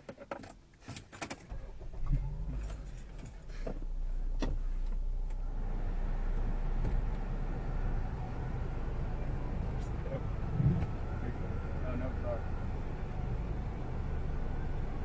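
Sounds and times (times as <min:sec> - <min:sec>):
car engine starting and running: 0:00.5 - 0:15.0.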